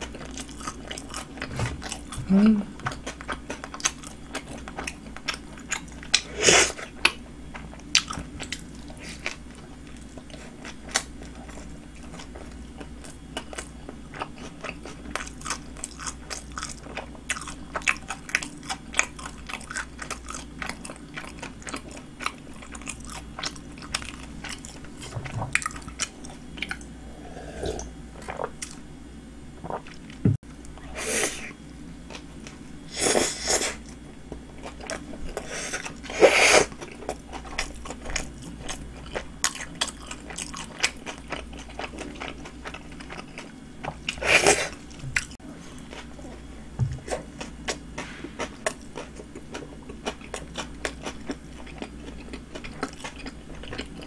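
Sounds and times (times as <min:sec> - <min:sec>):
chewing and biting sandwich: 0:34.4 - 0:54.0.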